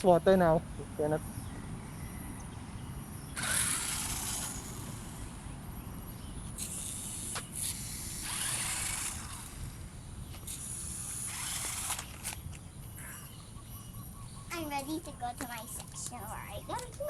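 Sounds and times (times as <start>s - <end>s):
remote-control car hissing bursts: 3.3s - 5.5s, 6.5s - 12.4s.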